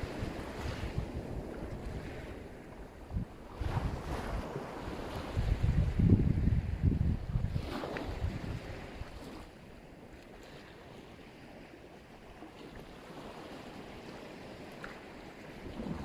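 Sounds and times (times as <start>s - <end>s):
wind buffeting microphone: 0.0s - 9.4s
surf waves washing in: 0.0s - 16.0s.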